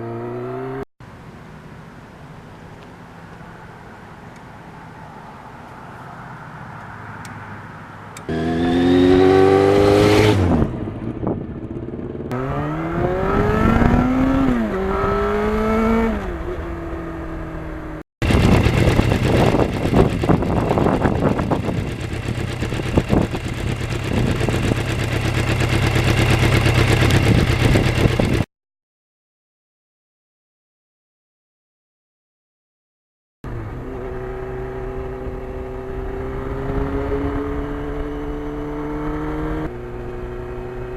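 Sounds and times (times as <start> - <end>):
motorcycle engine accelerating: 0.0 - 0.9, 3.0 - 28.5, 33.4 - 40.9
wind buffeting: 3.5 - 28.5, 34.0 - 40.9.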